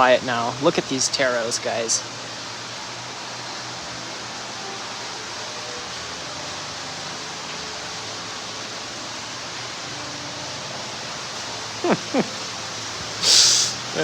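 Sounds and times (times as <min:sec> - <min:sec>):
water rushing from waterfall: 0:00.0 - 0:14.0
quick sweeping chirps: 0:13.2 - 0:13.8.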